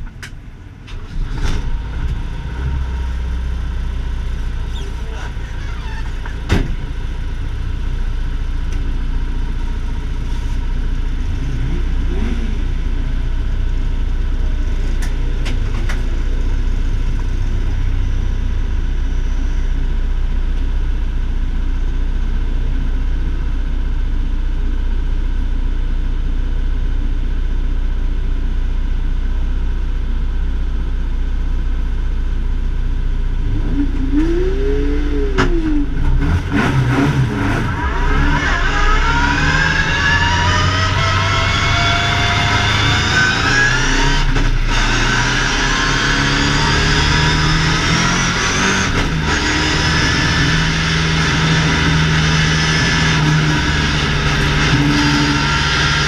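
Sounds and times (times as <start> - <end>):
car engine idling: 0.0 - 36.3
engine revving: 10.3 - 13.2, 33.4 - 56.0.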